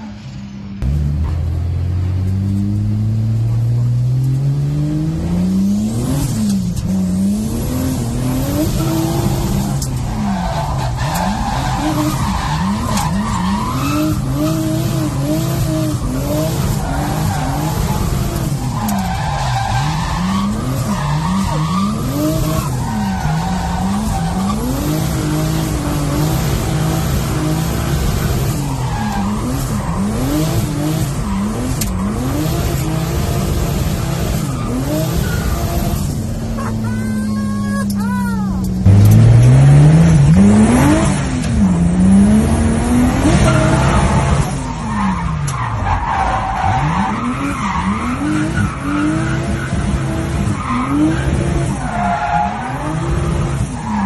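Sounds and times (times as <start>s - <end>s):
car engine revving: 0.0s - 54.0s
tyres squealing: 34.4s - 38.8s.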